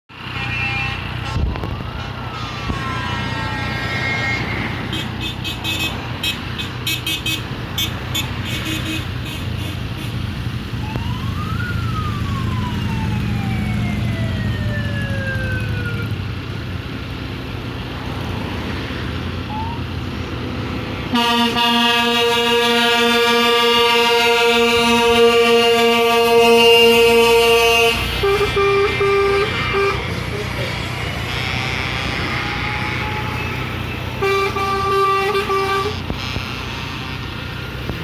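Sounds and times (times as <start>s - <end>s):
vehicle engines idling: 0.1s - 38.0s
siren wailing: 0.3s - 5.0s, 10.6s - 16.3s, 19.4s - 20.0s, 21.2s - 35.1s.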